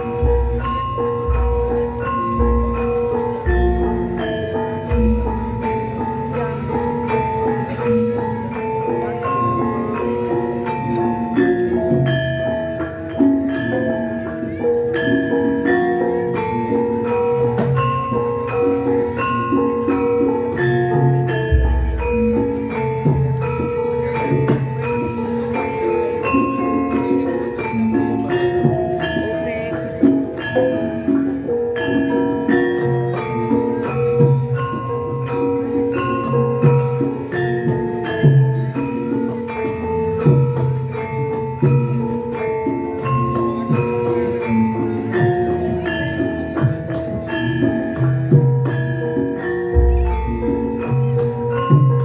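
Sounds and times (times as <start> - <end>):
gamelan ensemble playing: 0.0 - 52.0.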